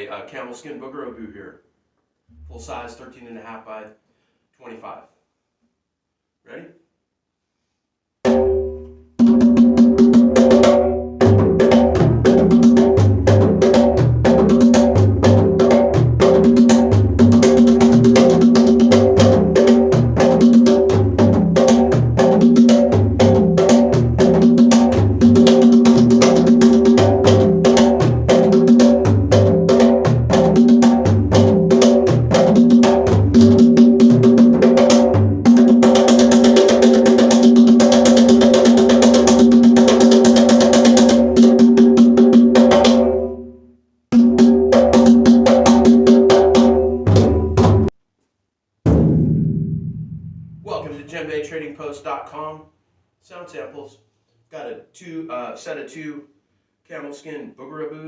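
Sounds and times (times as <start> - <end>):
hand drum playing: 9.2 - 43.3, 44.2 - 47.9.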